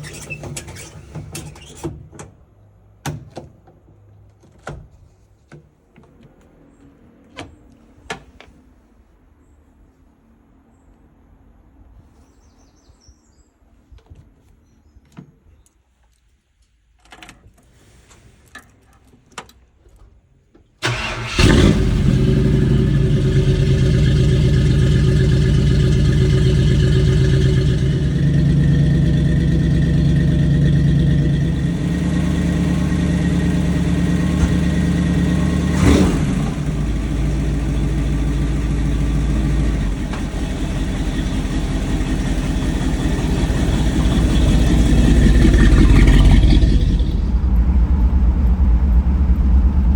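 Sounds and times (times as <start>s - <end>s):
truck engine starting and idling: 0.0s - 3.4s, 20.7s - 49.9s.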